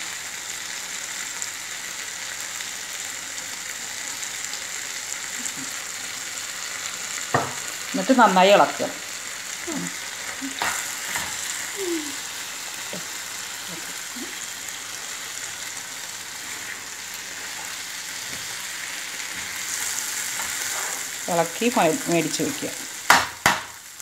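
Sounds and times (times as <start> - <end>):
chicken sizzling in a wok: 0.0 - 24.0
metal spoon scraping pan: 19.3 - 21.1.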